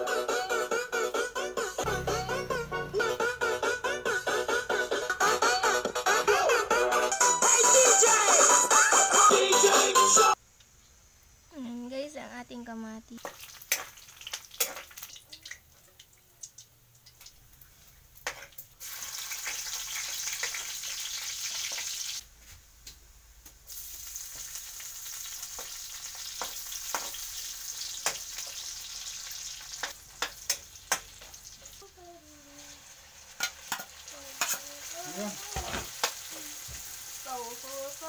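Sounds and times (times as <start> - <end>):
meat and onion sizzling: 7.5 - 22.3, 23.4 - 38.0
metal spatula scraping wok: 33.4 - 34.9.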